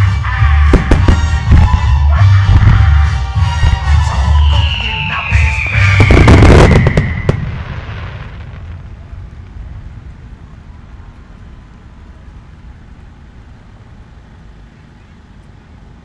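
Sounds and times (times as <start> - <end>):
firework shells bursting: 0.6 - 1.9, 4.6 - 8.7
rumbling echo: 0.6 - 10.4.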